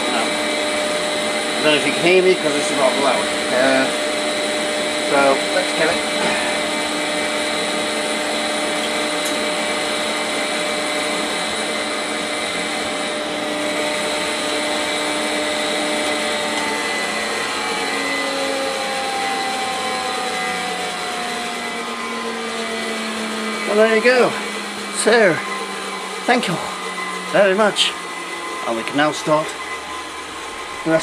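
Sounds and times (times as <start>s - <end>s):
computer cooling fans whirring: 0.0s - 31.0s
steady electronic tones: 0.0s - 31.0s.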